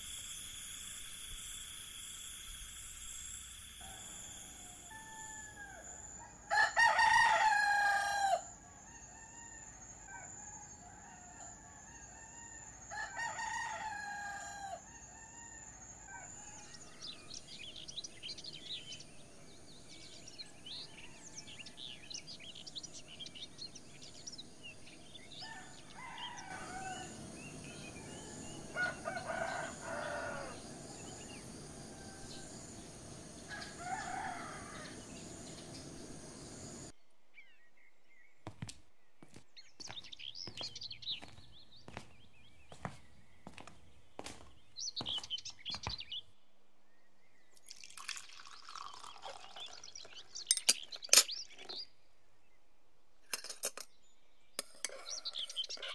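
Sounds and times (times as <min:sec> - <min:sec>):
high insect drone: 0:00.0 - 0:08.6, 0:09.6 - 0:36.9
rooster crowing: 0:03.8 - 0:36.9
small birds chirping: 0:08.8 - 0:46.4, 0:47.2 - 0:52.0, 0:53.9 - 0:55.9.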